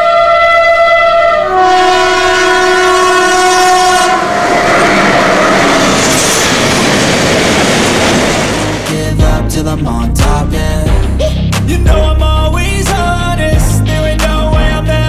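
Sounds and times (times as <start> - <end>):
locomotive two-tone horn: 0.0 - 6.5
train passing at speed: 0.7 - 9.3.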